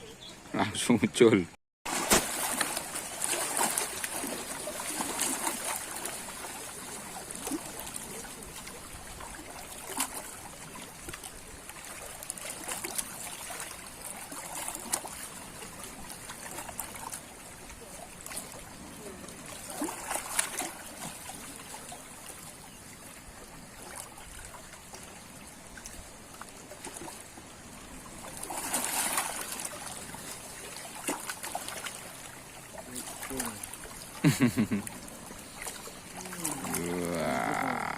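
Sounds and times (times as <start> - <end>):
seawater lapping at shore: 0.0 - 37.9.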